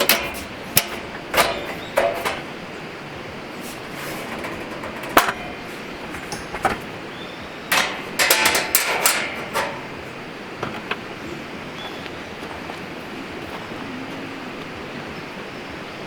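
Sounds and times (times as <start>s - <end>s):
steady hiss: 0.0s - 16.0s
hard objects knocking together: 3.6s - 7.0s.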